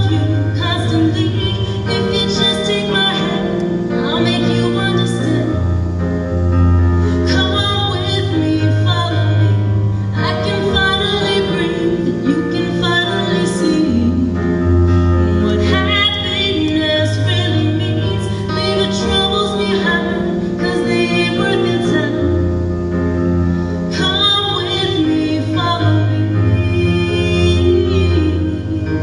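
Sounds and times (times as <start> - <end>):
long held bass notes: 0.0 - 29.0
woman singing ballad: 0.0 - 29.0.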